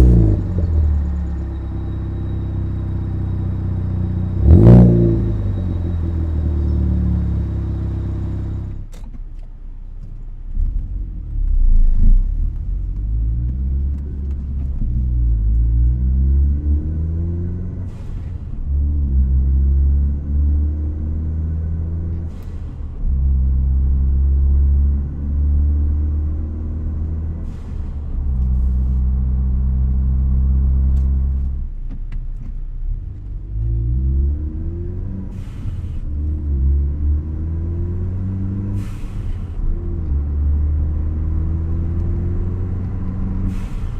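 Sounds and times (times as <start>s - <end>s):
car engine revving: 0.0s - 8.8s, 33.2s - 43.9s.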